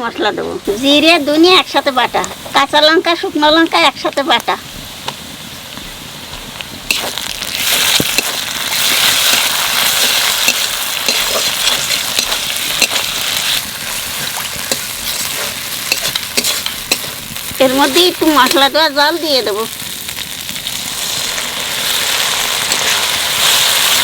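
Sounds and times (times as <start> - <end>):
spice paste sizzling in oil: 0.1 - 24.0
spatula stirring and scraping: 4.7 - 18.7, 21.1 - 24.0.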